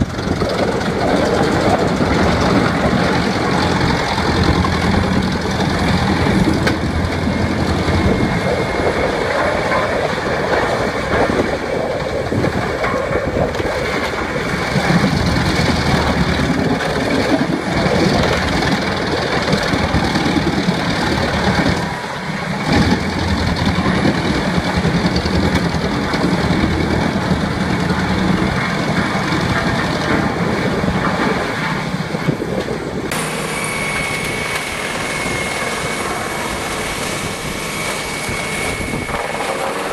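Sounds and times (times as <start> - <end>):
wood chipper running: 0.0 - 39.9.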